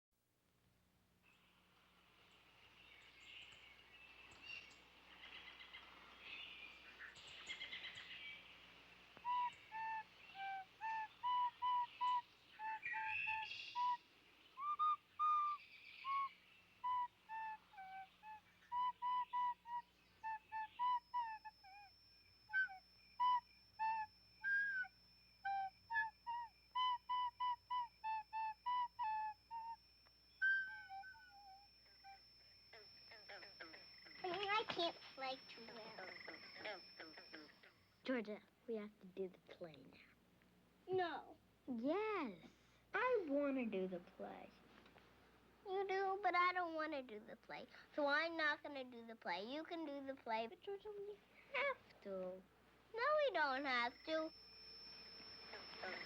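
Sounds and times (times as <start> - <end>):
soft hiss: 0.4 - 56.0
thin steady high tone: 1.2 - 56.0
quick bird-like chirping notes: 2.6 - 38.2.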